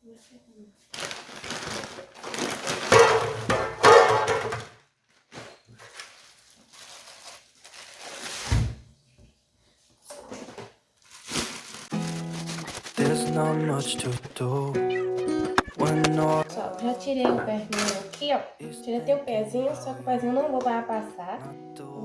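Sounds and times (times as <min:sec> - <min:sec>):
rustling and handling noises: 0:00.1 - 0:08.6, 0:09.7 - 0:14.3.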